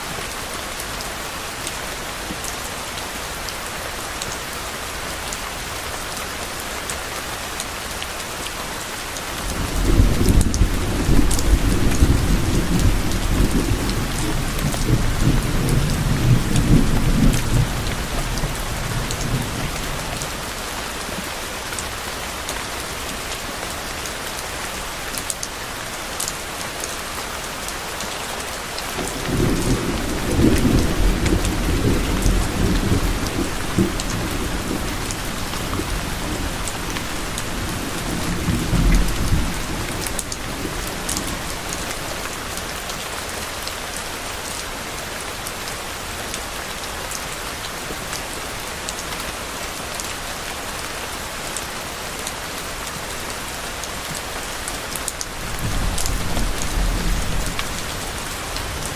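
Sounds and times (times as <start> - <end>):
steady rain falling: 0.0 - 58.9
thunder rumbling: 9.5 - 20.0, 29.0 - 42.0, 55.4 - 58.9.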